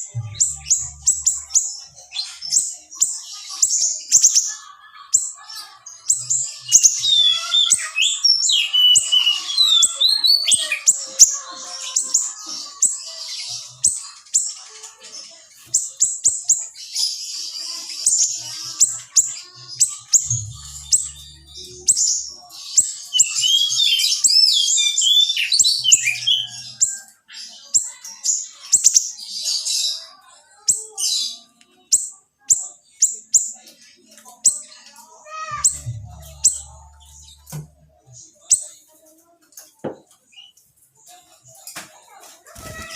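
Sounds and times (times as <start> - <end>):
songbird chirping and trilling: 0.0 - 42.9.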